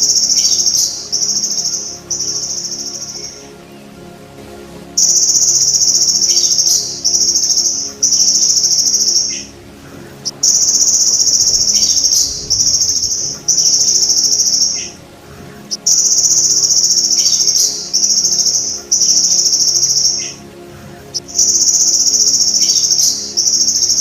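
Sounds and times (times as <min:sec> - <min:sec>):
grasshopper buzzing trills: 0:04.9 - 0:24.0.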